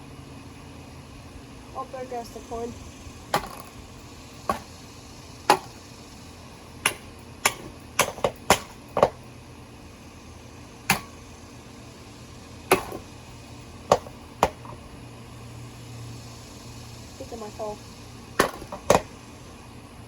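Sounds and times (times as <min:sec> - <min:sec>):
hammer striking metal fan: 0:03.3 - 0:03.8, 0:05.5 - 0:05.9, 0:06.6 - 0:09.3, 0:10.8 - 0:11.3, 0:12.7 - 0:13.1, 0:13.9 - 0:14.8, 0:18.4 - 0:19.1.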